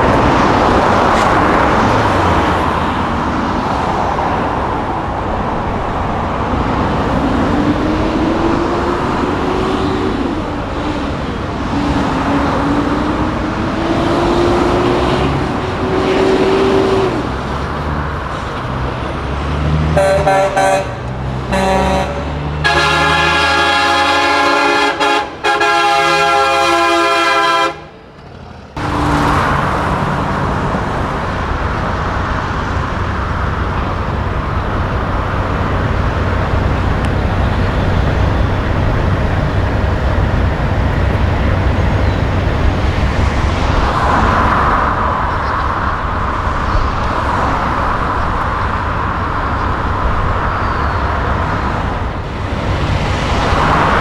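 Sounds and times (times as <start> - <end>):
diesel truck engine rumbling: 0.0 - 54.0
truck air horn chord: 20.0 - 27.9.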